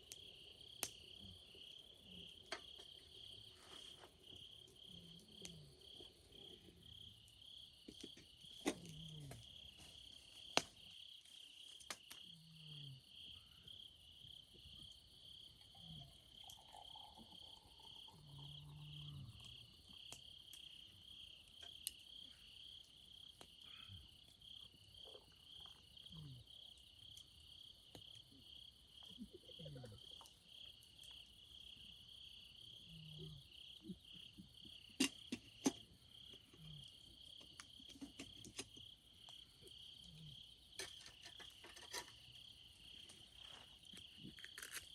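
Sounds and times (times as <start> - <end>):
insects chirping trill: 0.0 - 44.9
campfire crackling pops: 0.1 - 1.1, 7.8 - 10.9, 11.6 - 12.2, 21.5 - 22.2.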